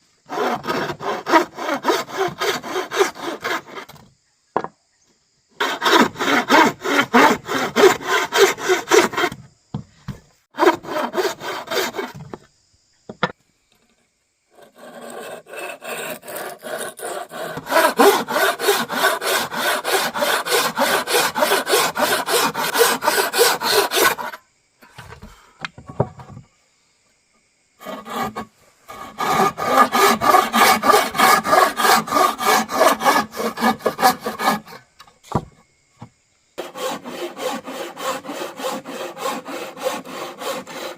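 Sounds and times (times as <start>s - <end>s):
hand saw cutting wood: 0.3s - 4.0s, 5.6s - 9.4s, 10.6s - 12.4s, 14.6s - 25.0s, 27.8s - 35.4s, 36.6s - 40.9s.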